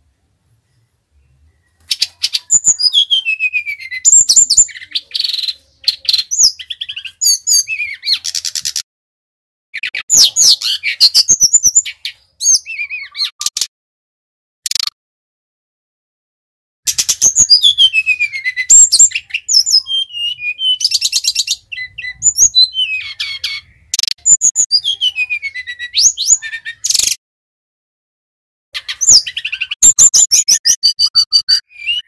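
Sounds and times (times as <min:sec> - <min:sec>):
flycatcher singing trills and whistles: 0:01.6 - 0:08.8, 0:09.8 - 0:13.6, 0:16.9 - 0:27.2, 0:28.8 - 0:32.0.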